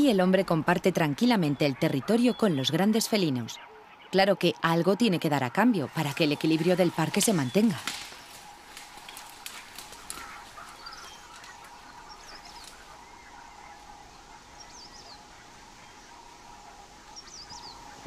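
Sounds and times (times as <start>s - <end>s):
faint bird chirps: 6.1s - 18.0s.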